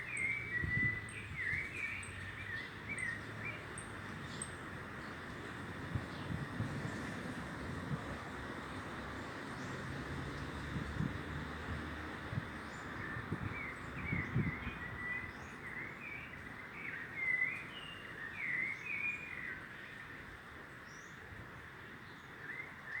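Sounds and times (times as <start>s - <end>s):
birds chirping and twittering: 0.0s - 5.3s, 12.6s - 20.1s.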